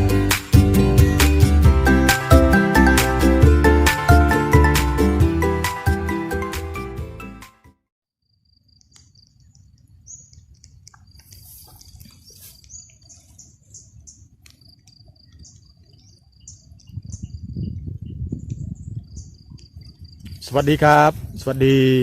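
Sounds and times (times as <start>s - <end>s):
insects chirping: 8.2s - 20.8s
birds chirping: 8.8s - 21.1s.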